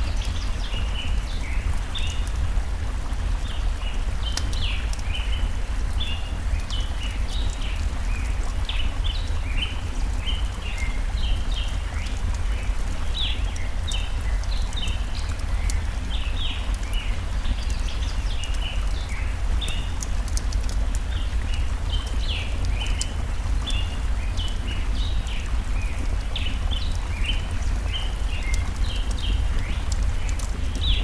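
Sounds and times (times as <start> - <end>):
faint campfire crackles: 0.0 - 31.0
forest stream rushing: 0.0 - 31.0
birds chirping: 21.0 - 31.0.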